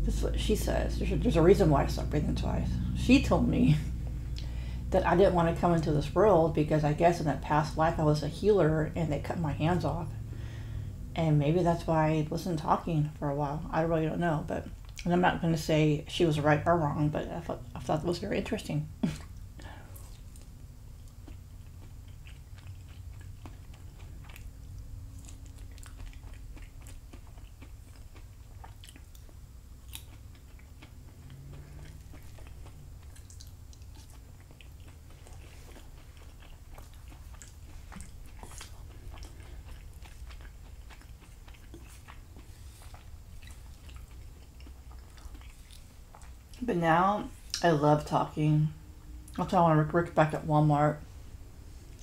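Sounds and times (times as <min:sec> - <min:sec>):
faint low hum: 0:00.0 - 0:52.0
person chewing food: 0:19.0 - 0:46.6.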